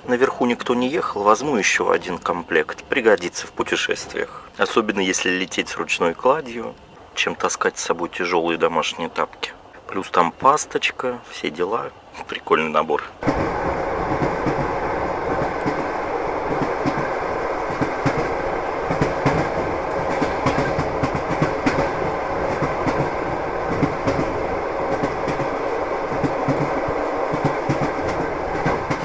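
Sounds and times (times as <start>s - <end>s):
train rolling on rails: 0.0s - 29.0s
wheels clicking: 13.2s - 29.0s.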